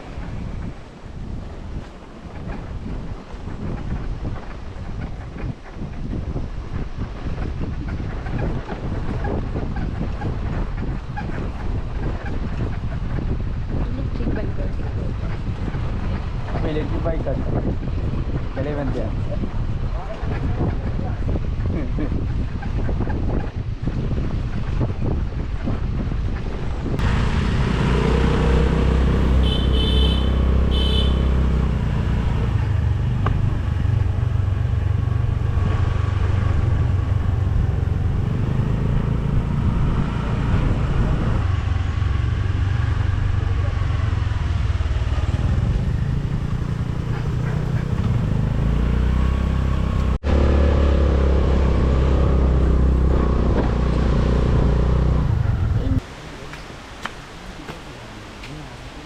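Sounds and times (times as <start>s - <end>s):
road and wind noise: 0.0s - 59.0s
motorcycle engine running: 27.0s - 56.0s.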